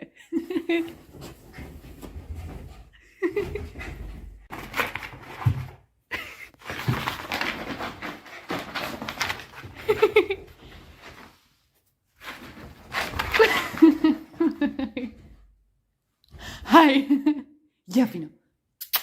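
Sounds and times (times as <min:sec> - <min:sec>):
scuffling and clattering: 0:00.6 - 0:05.9, 0:06.5 - 0:11.5, 0:12.2 - 0:14.6.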